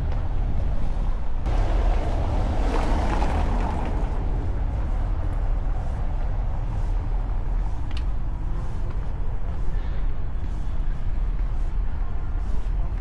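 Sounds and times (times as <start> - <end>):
low rumble of street traffic: 0.0 - 13.0
vehicle passing close: 1.5 - 7.1.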